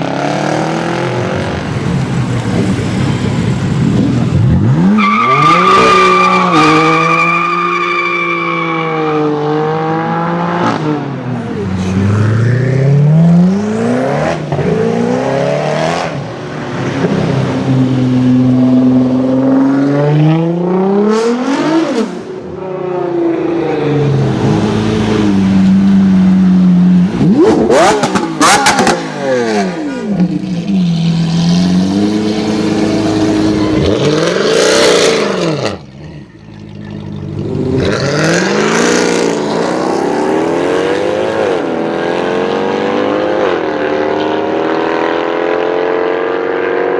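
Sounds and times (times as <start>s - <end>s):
car engines revving: 0.0s - 46.9s
cars passing by: 0.0s - 46.9s.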